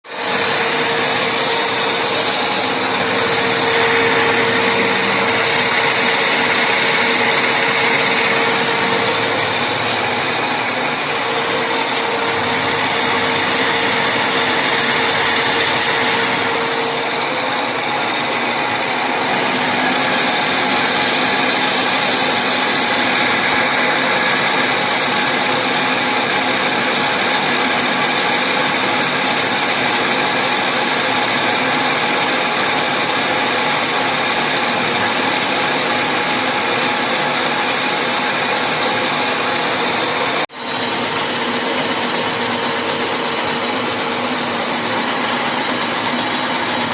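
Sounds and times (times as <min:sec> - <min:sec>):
electric machine tool motor whine: 0:00.1 - 0:46.9.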